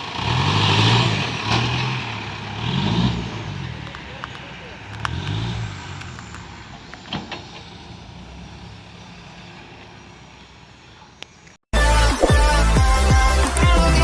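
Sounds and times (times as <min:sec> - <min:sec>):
loud electronic music: 0:11.8 - 0:14.0.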